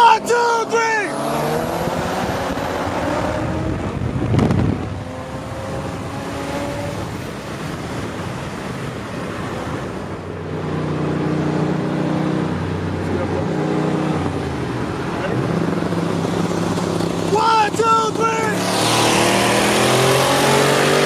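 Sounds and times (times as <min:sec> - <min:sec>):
faint car engine drone: 0:00.0 - 0:20.8
wind rushing over microphone: 0:01.1 - 0:17.8.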